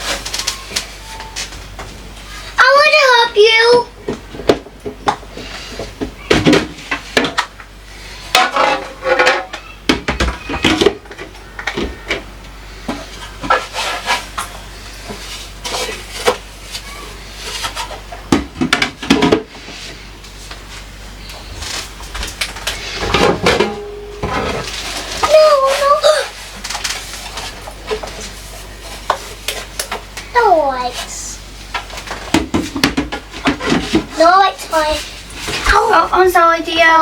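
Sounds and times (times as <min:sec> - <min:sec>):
voice: 0:02.6 - 0:03.9, 0:25.2 - 0:26.4, 0:30.4 - 0:31.4, 0:34.1 - 0:35.0, 0:35.6 - 0:37.0
dishes clattering and knocking: 0:08.3 - 0:12.2, 0:23.0 - 0:25.3, 0:32.1 - 0:34.1.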